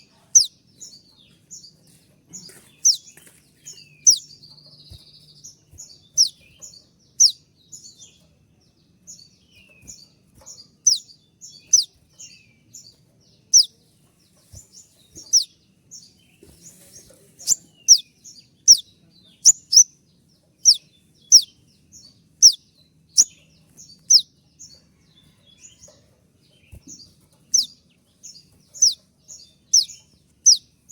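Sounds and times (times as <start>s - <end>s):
bird twittering: 0.0s - 1.0s, 2.4s - 8.2s, 9.1s - 12.9s, 13.5s - 13.8s, 14.6s - 16.4s, 17.4s - 20.0s, 20.6s - 24.4s, 26.6s - 30.9s
bird chirping: 0.0s - 30.9s.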